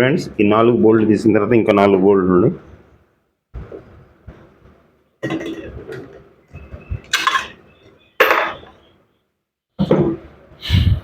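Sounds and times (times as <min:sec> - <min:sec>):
metal tools clanking and scraping: 0:07.0 - 0:08.8.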